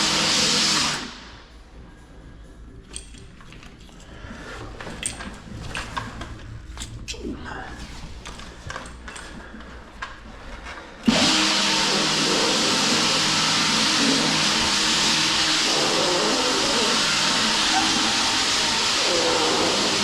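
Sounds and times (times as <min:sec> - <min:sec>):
machine motor rushing hiss: 0:11.1 - 0:20.0.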